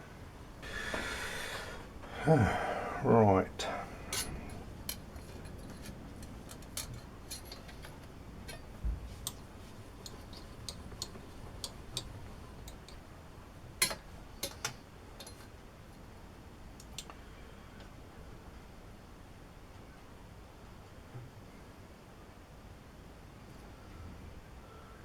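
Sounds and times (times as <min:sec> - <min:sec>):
tools and metal parts clicking: 0:04.1 - 0:09.4, 0:13.8 - 0:15.5.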